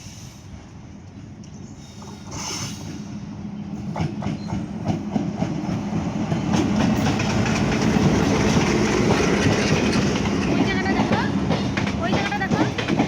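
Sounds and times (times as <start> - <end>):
train rumble: 0.0 - 13.0
train wheels clattering over rail joints: 3.9 - 13.0.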